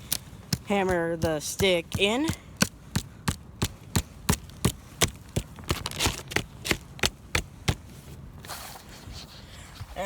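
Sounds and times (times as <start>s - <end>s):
rock hammering wooden stake: 0.1s - 7.8s.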